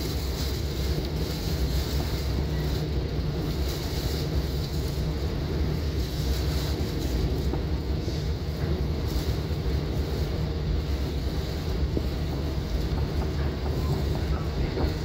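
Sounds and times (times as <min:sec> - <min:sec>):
train rumbling with rushing hiss: 0:00.0 - 0:15.0.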